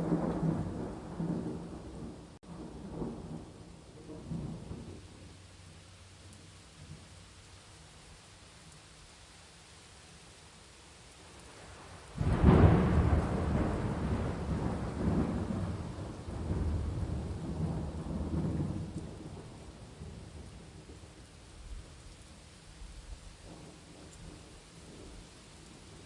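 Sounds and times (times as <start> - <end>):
thunder rumbling: 0.0 - 5.5, 11.7 - 21.2
steady rain: 0.0 - 26.0.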